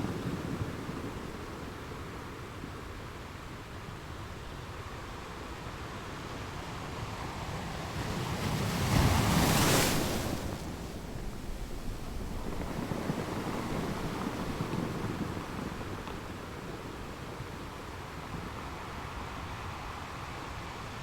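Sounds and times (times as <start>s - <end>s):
ocean waves crashing: 7.7s - 18.2s.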